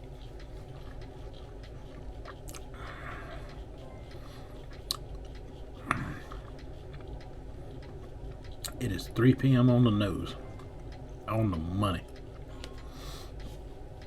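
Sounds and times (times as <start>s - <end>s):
person chewing: 2.2s - 3.0s.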